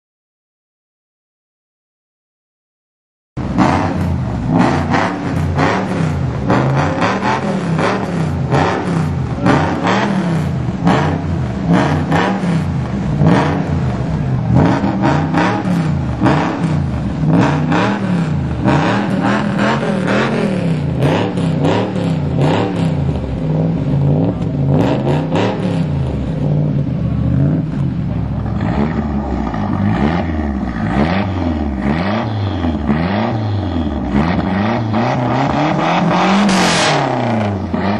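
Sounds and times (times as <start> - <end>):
car engines revving: 3.4 - 37.9
sharp exhaust cracks: 27.7 - 37.9.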